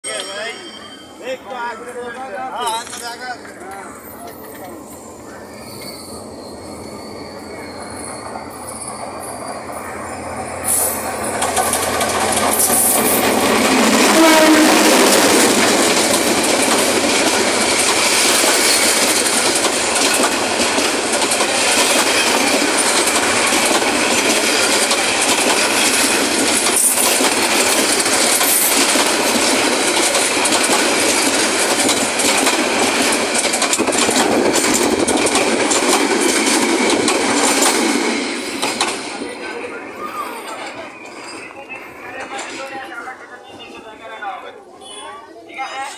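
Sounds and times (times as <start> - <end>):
passenger train passing: 0.0 - 45.9.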